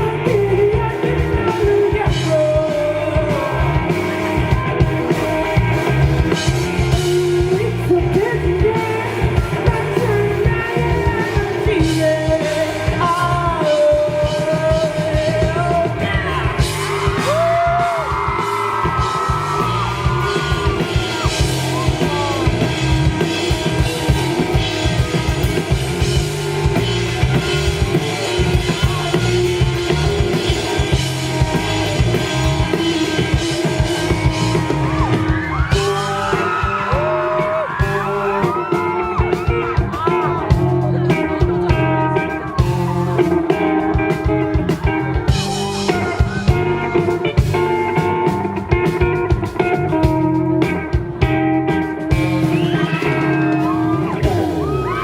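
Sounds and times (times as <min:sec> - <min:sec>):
person singing: 0:00.0 - 0:05.6, 0:06.3 - 0:55.0
dense drum beat: 0:00.0 - 0:55.0
rock band playing live: 0:00.0 - 0:55.0.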